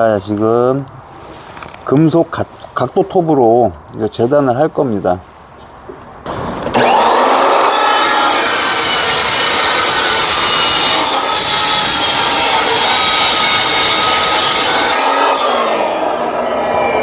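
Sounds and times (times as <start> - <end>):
saw motor winding down: 6.3 - 17.0
saw cutting steel pipe: 6.6 - 17.0.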